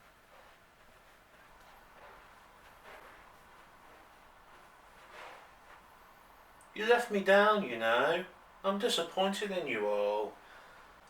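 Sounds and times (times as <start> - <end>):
faint soft rustle: 0.0 - 6.7.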